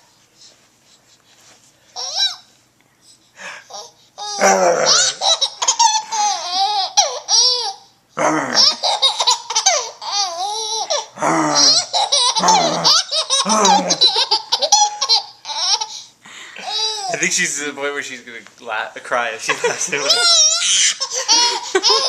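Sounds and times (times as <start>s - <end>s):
baby laughing: 3.7s - 7.9s, 8.6s - 17.4s, 19.5s - 22.0s.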